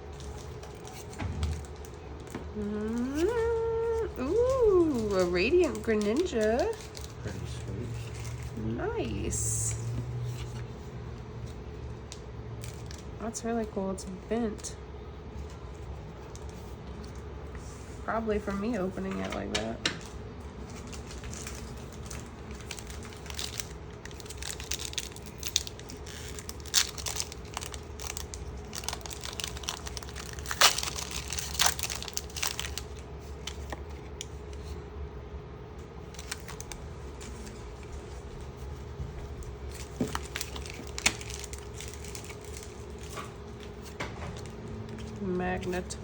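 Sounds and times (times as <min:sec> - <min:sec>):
foil wrapper crinkling and tearing: 0:00.0 - 0:10.8, 0:12.6 - 0:13.2, 0:20.0 - 0:34.8, 0:36.0 - 0:45.8
steady low hum: 0:00.0 - 0:46.0
cards being handled: 0:00.2 - 0:11.6.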